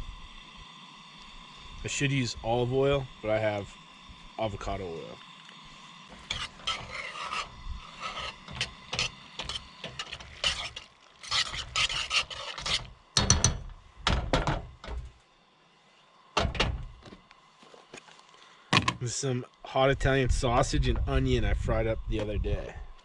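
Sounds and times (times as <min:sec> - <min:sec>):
utensil scraping cookware: 0:06.1 - 0:13.7.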